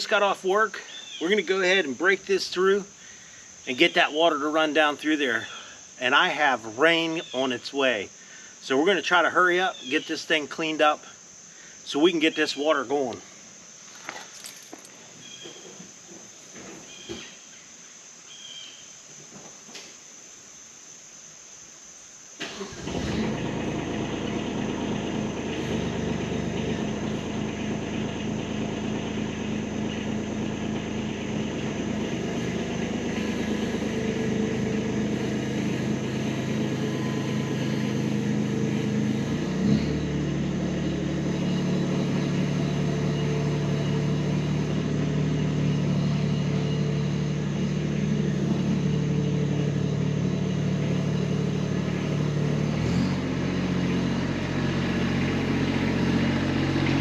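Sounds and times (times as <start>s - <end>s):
tractor diesel engine running: 22.4s - 57.0s.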